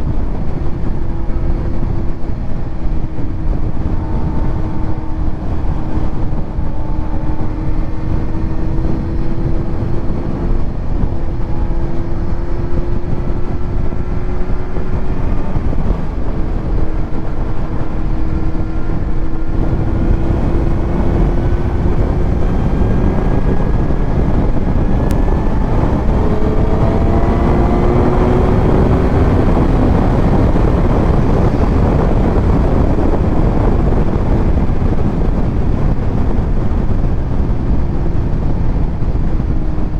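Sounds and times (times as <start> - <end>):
motorcycle engine revving: 0.0 - 39.9
wind rush on microphone: 0.0 - 39.9.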